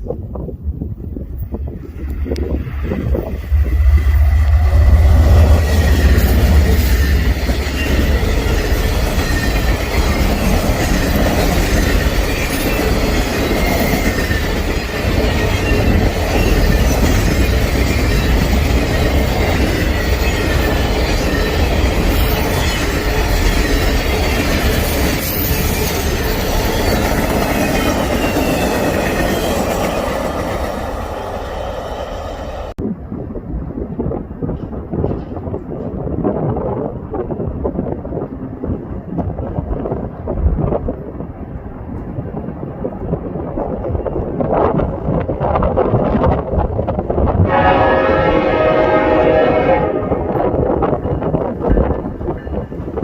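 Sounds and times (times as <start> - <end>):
freight train wheels rumbling: 0.0 - 53.0
wheels squealing on rail: 1.8 - 32.7.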